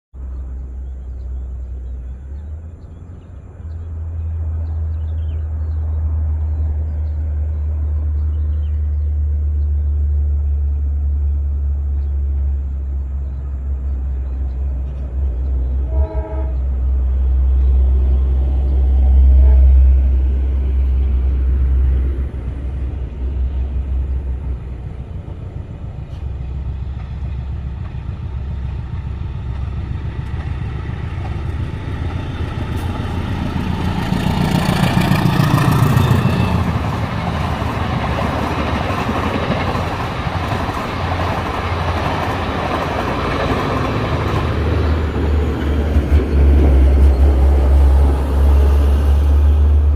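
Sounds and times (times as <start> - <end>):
train passing: 0.2 - 49.9
train wheel and rail noise: 0.2 - 49.9.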